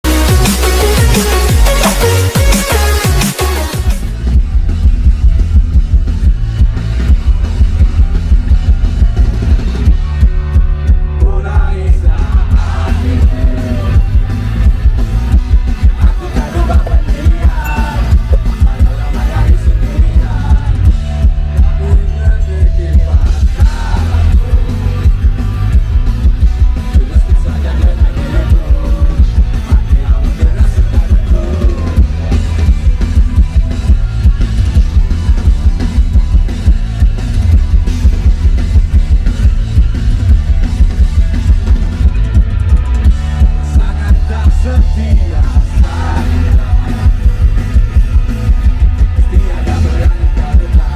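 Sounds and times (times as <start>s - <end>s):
live rock band music: 0.0s - 50.9s
melodic line: 16.7s - 18.8s.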